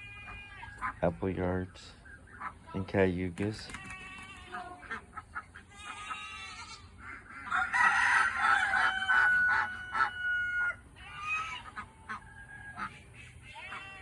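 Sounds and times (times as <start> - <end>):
poultry calls: 0.0 - 14.0
rooster crowing: 7.4 - 11.4.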